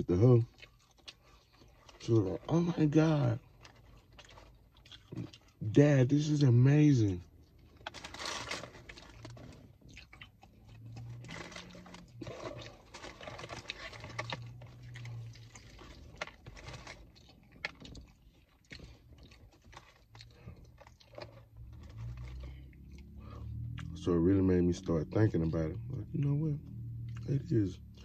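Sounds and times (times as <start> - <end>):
man chewing crunchy food: 0.3 - 2.7, 3.4 - 5.6, 7.2 - 24.0, 27.0 - 28.0.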